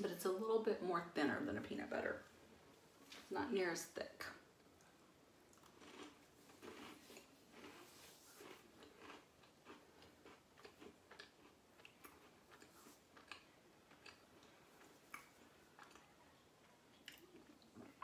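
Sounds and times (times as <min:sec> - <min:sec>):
person chewing cracker: 0:04.8 - 0:18.0.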